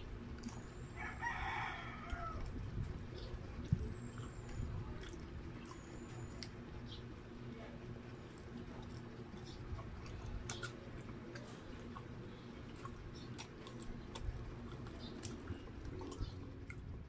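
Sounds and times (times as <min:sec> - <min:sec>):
person chewing: 0:03.6 - 0:06.6, 0:08.0 - 0:17.0.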